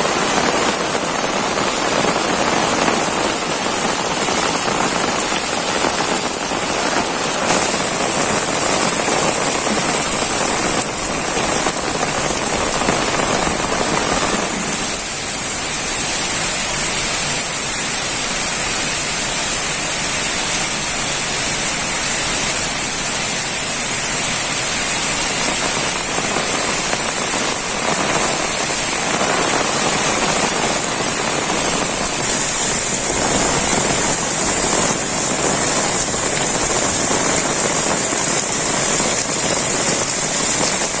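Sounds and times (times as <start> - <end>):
heavy rain falling: 0.0 - 41.0.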